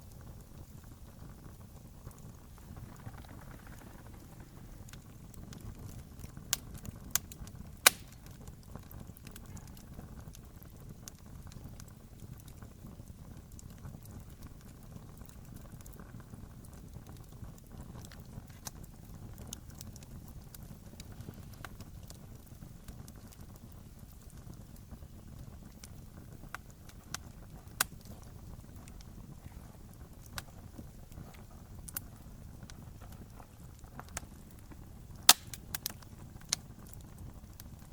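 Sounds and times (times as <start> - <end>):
low steady rumble: 0.0 - 11.0
fire pops: 0.0 - 37.9
wood fire crackling: 0.0 - 37.9.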